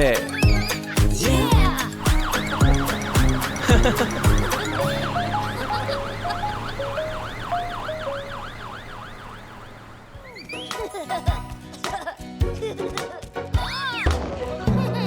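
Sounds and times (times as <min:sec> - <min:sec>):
cartoon siren wailing: 0:01.6 - 0:10.5
rising whistle-like glide: 0:01.8 - 0:10.6.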